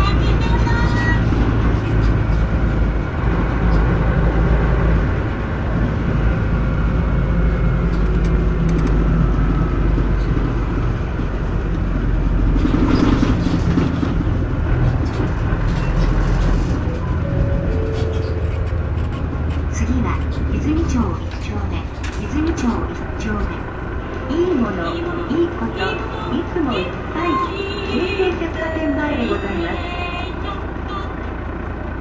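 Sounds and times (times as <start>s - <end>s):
bus diesel engine droning: 0.0s - 32.0s
road noise: 0.0s - 32.0s.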